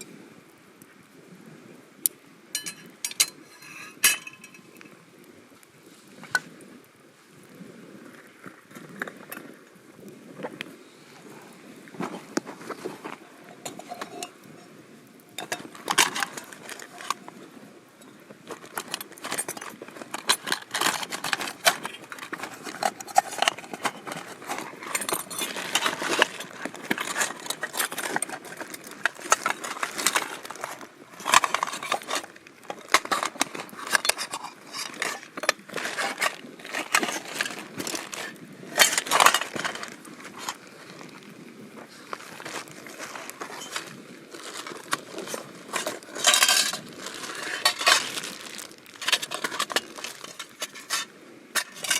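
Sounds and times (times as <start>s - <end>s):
metal cookware clinking: 2.6s - 4.7s.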